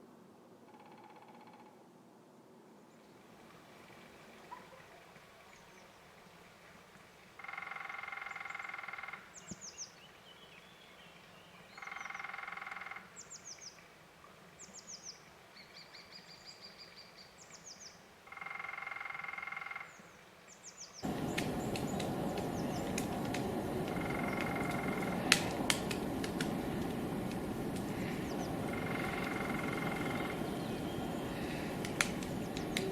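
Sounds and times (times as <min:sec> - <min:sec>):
hiss with sharp taps: 0:21.0 - 0:32.9
woodpecker drumming: 0:21.0 - 0:32.9.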